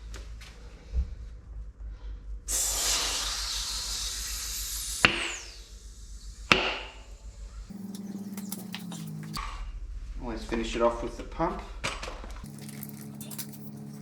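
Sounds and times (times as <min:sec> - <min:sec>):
gas cartridge rushing hiss: 0:02.5 - 0:09.4.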